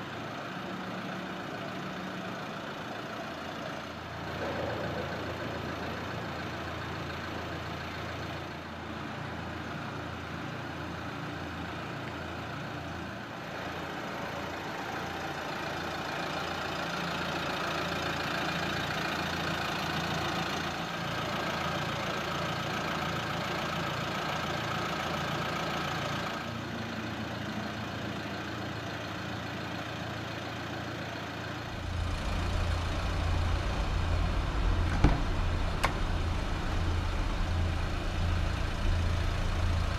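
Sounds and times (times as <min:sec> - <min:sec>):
diesel engine idling: 0:00.0 - 0:39.9
deep low rumble: 0:31.6 - 0:39.9.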